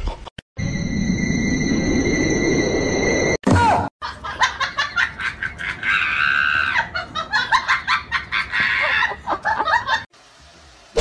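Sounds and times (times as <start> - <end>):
laughter: 4.0 - 10.1
shrill screaming cry: 5.8 - 6.9.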